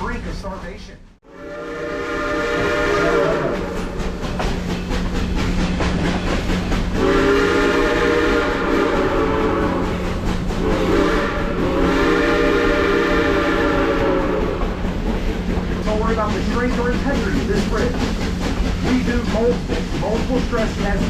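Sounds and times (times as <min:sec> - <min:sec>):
train running rumble: 0:00.0 - 0:21.0
steam locomotive whistle: 0:01.2 - 0:04.0, 0:06.9 - 0:14.8
train wheels clacking over rails: 0:02.2 - 0:21.0.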